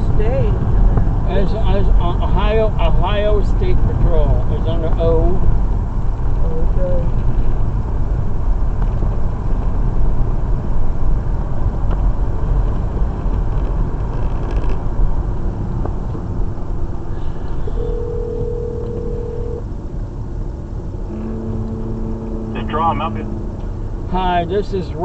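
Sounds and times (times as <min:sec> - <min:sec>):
car cabin road and engine noise: 0:00.0 - 0:25.0
phone ringing tone: 0:17.8 - 0:19.6.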